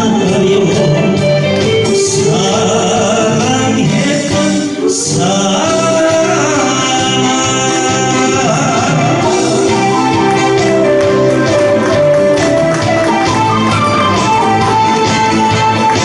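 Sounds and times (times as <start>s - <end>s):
man singing pop song: 0.0s - 10.0s
instrumental accompaniment: 0.0s - 16.0s.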